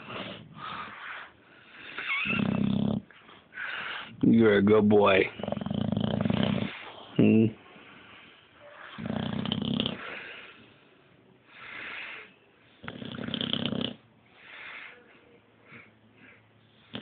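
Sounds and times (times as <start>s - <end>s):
dog breathing softly: 0.0s - 2.2s, 3.1s - 4.3s, 5.2s - 17.0s
dog snoring: 0.0s - 4.3s, 5.2s - 7.5s, 8.6s - 10.6s, 11.5s - 15.0s, 16.7s - 17.0s.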